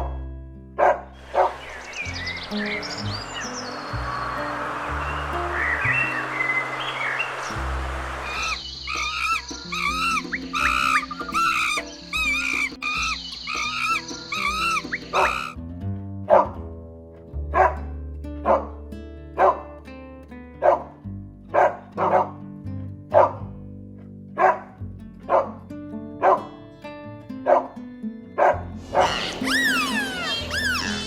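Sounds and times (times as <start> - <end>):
dog barking: 0.8 - 1.6, 16.3 - 16.5, 17.5 - 17.8, 18.4 - 18.7, 19.4 - 19.6, 20.6 - 20.9, 21.5 - 22.3, 23.1 - 23.4, 24.4 - 25.6, 26.2 - 26.5, 27.5 - 27.7, 28.4 - 29.2
background music: 0.8 - 15.5
high chirping calls: 1.2 - 15.6, 28.8 - 31.0.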